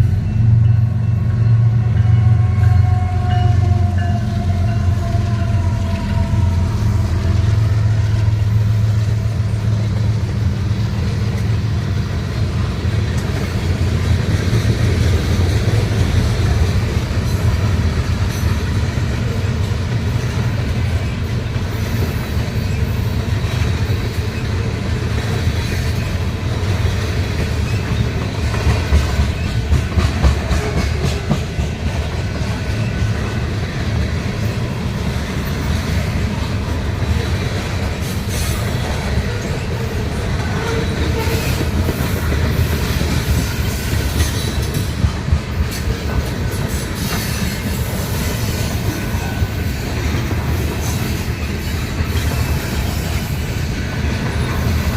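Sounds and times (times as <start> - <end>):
diesel train rumble: 0.0 - 54.9
wheels clicking over rail joints: 12.3 - 54.9.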